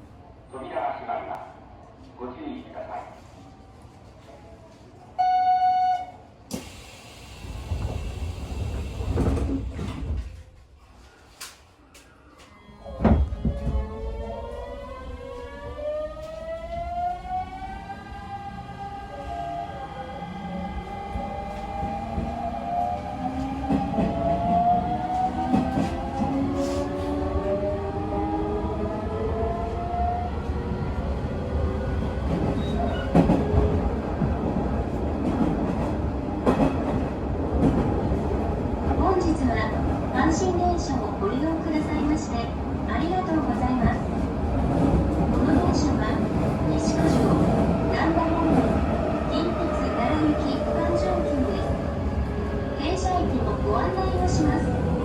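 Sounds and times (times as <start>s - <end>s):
train doors hissing shut: 6.5s - 9.9s.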